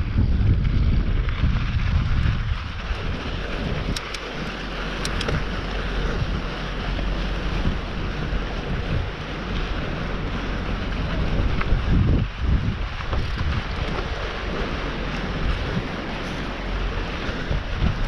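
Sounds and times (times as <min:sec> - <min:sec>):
mountain bike rolling on dirt: 0:00.0 - 0:18.0
wind on microphone: 0:00.0 - 0:18.0
sharp clicks: 0:03.9 - 0:05.4
bike thumping over bumps: 0:08.8 - 0:18.0.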